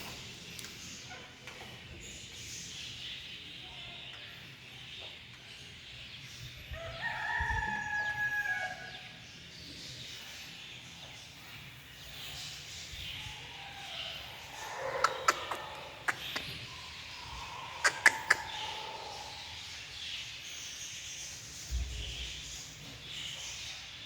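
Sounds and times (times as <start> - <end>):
rooster crowing: 6.8 - 9.0.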